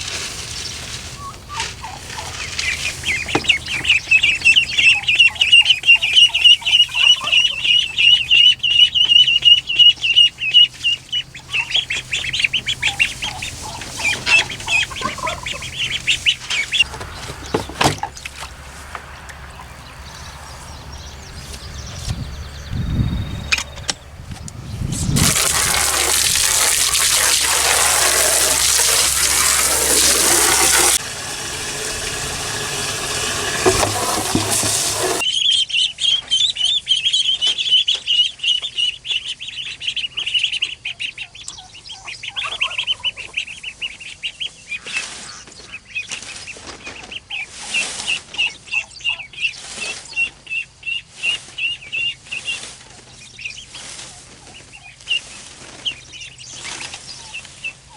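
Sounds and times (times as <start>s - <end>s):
chickens calling: 0.0s - 35.3s, 40.4s - 45.7s
loud rushing noise: 28.6s - 35.2s.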